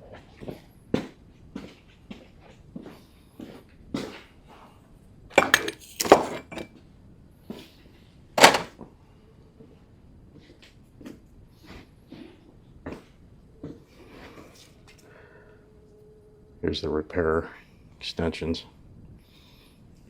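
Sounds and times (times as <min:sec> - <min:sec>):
metal hand tools clinking: 0:05.4 - 0:06.7.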